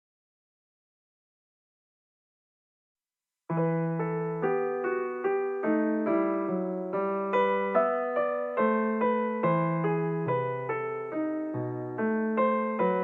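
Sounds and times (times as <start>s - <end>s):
piano playing over bass notes: 3.5s - 13.0s.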